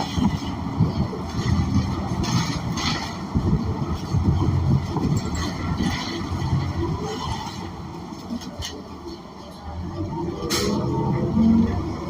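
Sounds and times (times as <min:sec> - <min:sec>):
bus engine rumbling: 0:00.0 - 0:12.0
road noise: 0:00.0 - 0:12.0.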